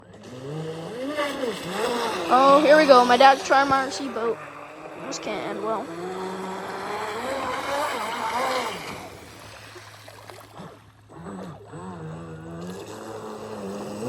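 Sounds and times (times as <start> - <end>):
rc boat motor running: 0.0 - 14.0
water spray rushing: 0.6 - 10.5.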